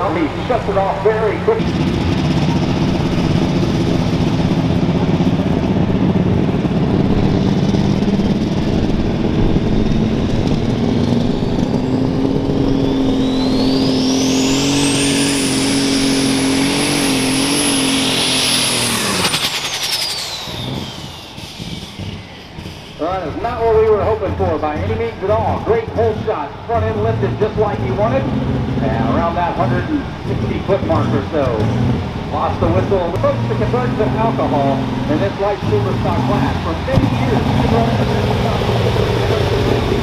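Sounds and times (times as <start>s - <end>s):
tractor engine running flat out: 0.0s - 40.0s
turbocharger whistle: 9.2s - 26.1s.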